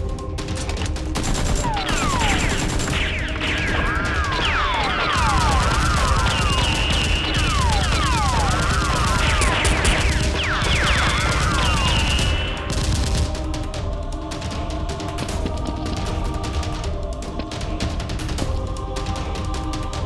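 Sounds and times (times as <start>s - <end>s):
background music: 0.0s - 20.0s
automatic gunfire: 0.6s - 13.4s
whistling ricochets: 1.6s - 12.7s.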